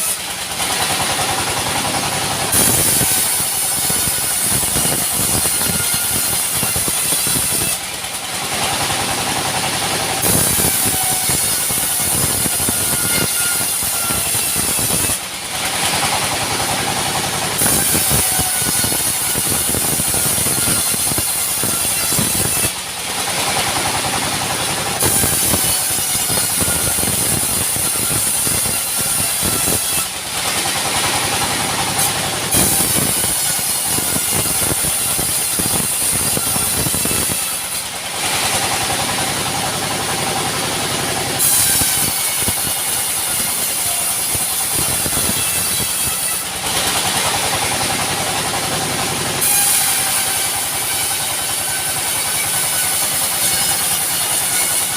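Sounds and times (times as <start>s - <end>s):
high-pitched saw whine: 0.0s - 54.9s
sawmill saw running: 0.0s - 54.9s.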